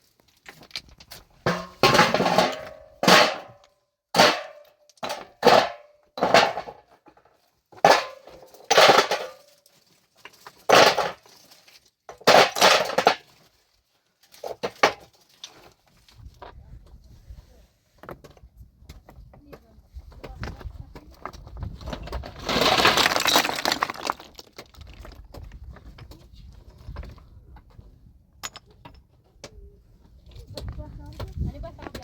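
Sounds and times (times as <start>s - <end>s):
stones and metal tools striking rock: 22.1s - 25.4s, 28.4s - 29.1s.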